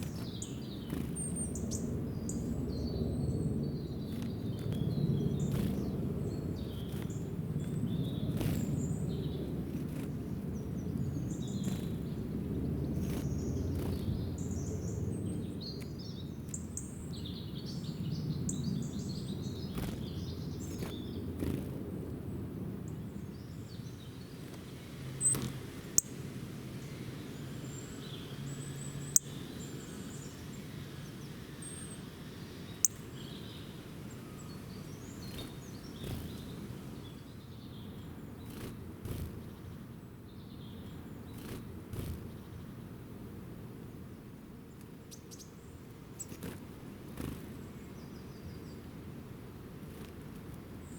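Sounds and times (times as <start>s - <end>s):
small birds chirping: 0.0s - 43.3s, 44.5s - 50.9s
low outdoor rumble: 0.0s - 44.8s.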